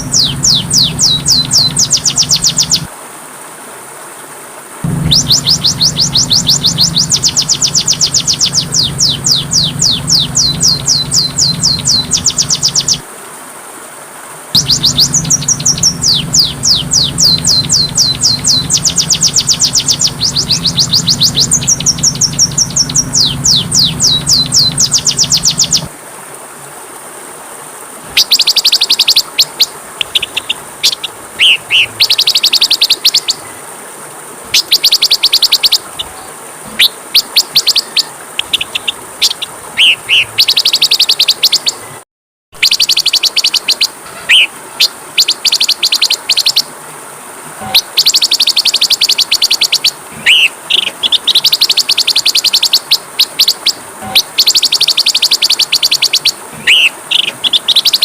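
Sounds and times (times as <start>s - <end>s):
bird buzzy trilled song: 0.0s - 2.9s, 4.8s - 13.0s, 14.6s - 25.9s, 28.1s - 33.6s, 34.5s - 42.0s, 42.6s - 46.7s, 47.6s - 58.0s
faint high hiss: 0.0s - 42.0s.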